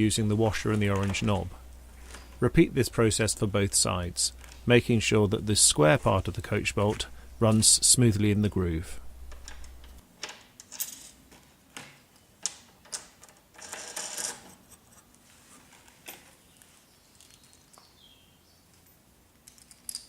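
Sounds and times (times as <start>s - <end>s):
small hardware clicking and rattling: 18.7s - 20.0s.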